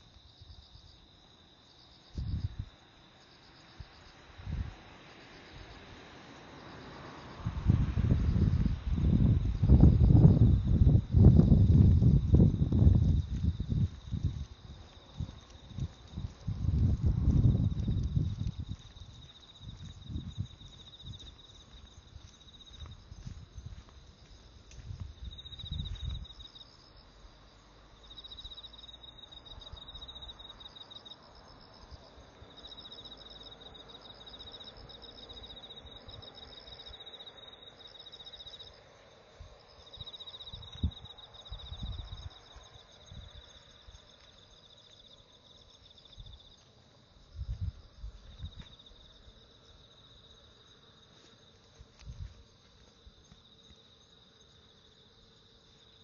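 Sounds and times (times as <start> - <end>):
insects trilling: 0.0 - 56.0
footsteps and clothing rustling: 11.6 - 26.4, 51.0 - 53.9.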